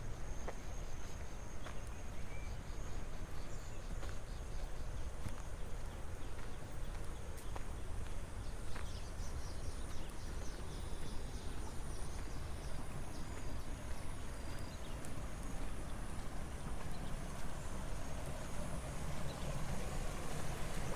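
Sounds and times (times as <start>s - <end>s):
light footstep clicks: 0.4s - 2.5s, 3.4s - 17.6s.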